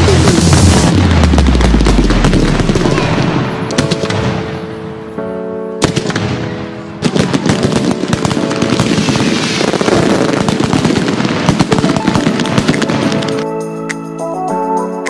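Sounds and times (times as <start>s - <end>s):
firecrackers crackling and popping: 0.0s - 4.3s, 7.0s - 13.5s
music with held tones: 12.0s - 15.0s.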